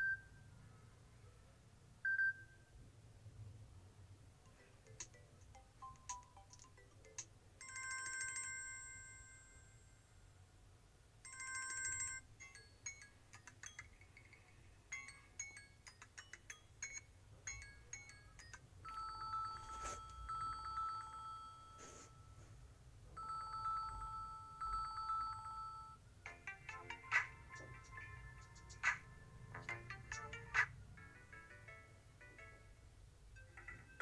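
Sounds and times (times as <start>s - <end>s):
plucked ringtone tune: 4.5s - 9.8s, 11.3s - 22.1s
quick ringtone melody: 4.5s - 9.9s, 11.2s - 22.2s, 23.2s - 32.7s
trilling phone ring: 7.6s - 9.8s, 11.3s - 13.0s, 16.9s - 22.2s, 23.2s - 26.0s.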